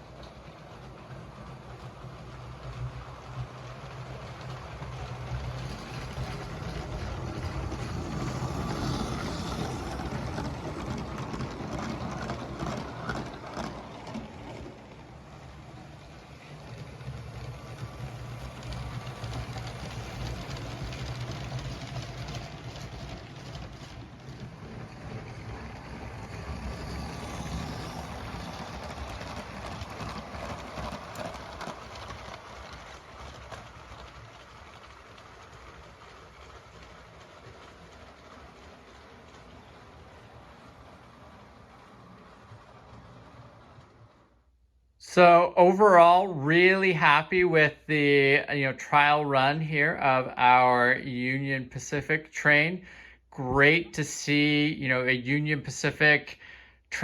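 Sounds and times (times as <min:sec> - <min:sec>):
wheels clicking over rail joints: 0:00.0 - 0:44.4
toy train motor whirring: 0:00.1 - 0:44.4.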